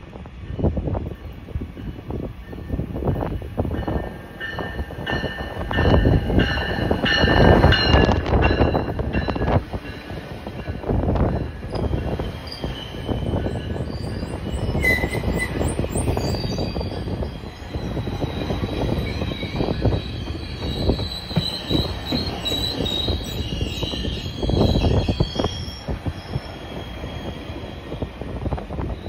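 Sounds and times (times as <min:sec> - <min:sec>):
train wheels rumbling on rail: 0:00.0 - 0:29.0
high wheel squeal: 0:11.6 - 0:29.0.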